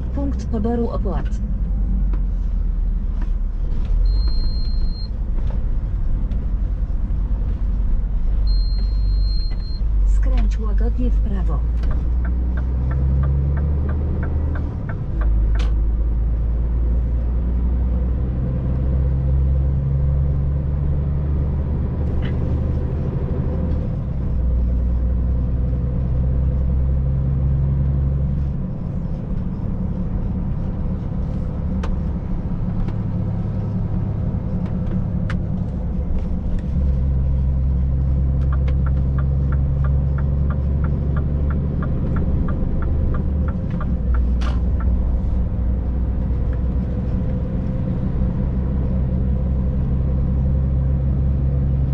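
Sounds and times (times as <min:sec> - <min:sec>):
truck diesel engine rumble: 0:00.0 - 0:51.9.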